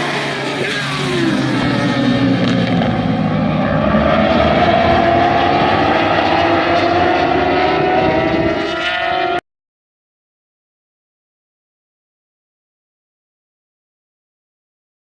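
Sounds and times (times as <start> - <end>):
motorbike engines at high revs: 0.0 - 9.4.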